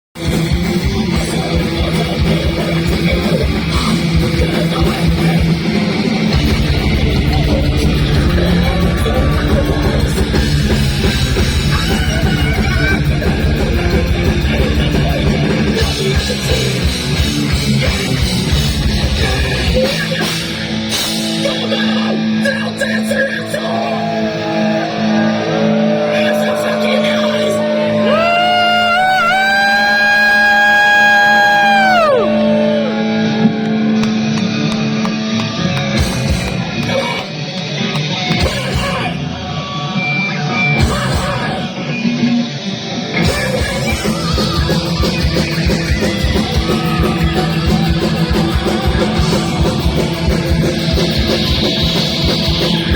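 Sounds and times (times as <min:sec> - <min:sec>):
fast driving drums: 0:00.2 - 0:23.6, 0:34.0 - 0:39.3, 0:40.8 - 0:41.8, 0:43.2 - 0:52.9
distorted electric guitars: 0:00.2 - 0:52.9
heavy metal band playing: 0:00.2 - 0:52.9.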